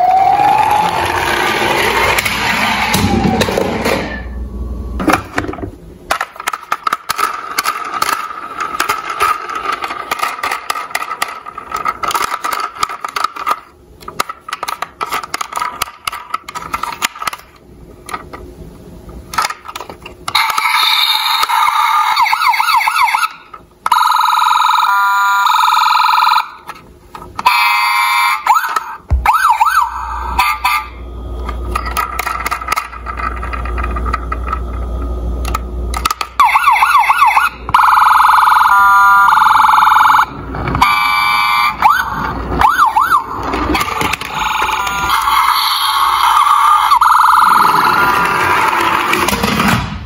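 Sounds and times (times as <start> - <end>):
electronic siren wailing and pulsing: 0.0 - 4.4, 20.4 - 26.6, 27.4 - 31.4, 36.3 - 49.0.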